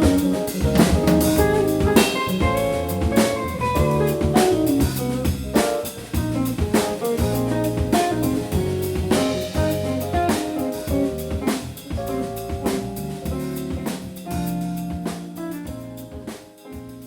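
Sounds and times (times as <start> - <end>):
band playing: 0.0 - 16.0
drum kit steady beat: 0.0 - 17.0.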